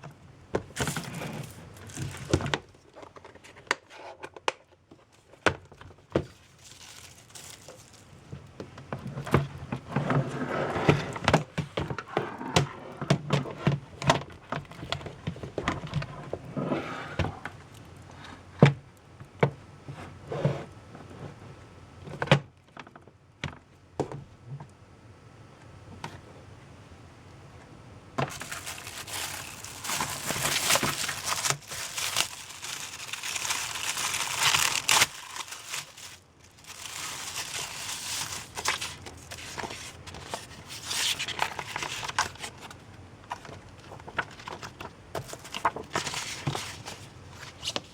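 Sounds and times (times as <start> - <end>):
packaging rustling and crinkling: 0.7 - 10.3, 28.2 - 47.9.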